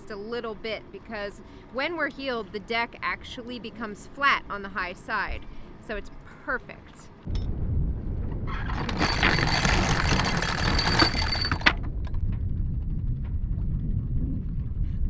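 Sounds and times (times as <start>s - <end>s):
metal clinks: 8.7s - 11.8s
wind on microphone: 11.7s - 15.0s.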